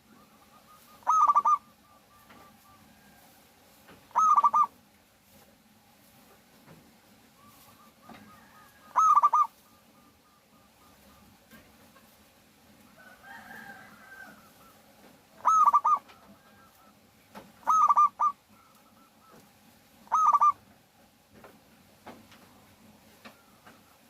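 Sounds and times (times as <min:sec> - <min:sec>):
dove cooing: 0:00.0 - 0:03.2, 0:04.1 - 0:04.8, 0:07.4 - 0:11.8, 0:13.2 - 0:20.7.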